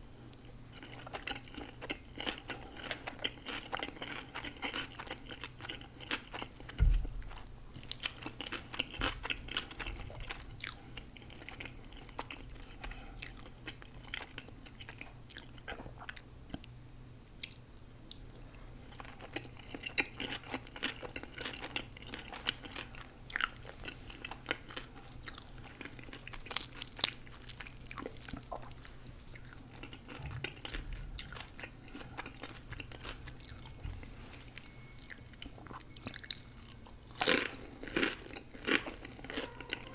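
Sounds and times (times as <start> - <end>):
chewing and crunching food: 0.3 - 16.8, 17.4 - 39.9
low thump: 6.8 - 7.3.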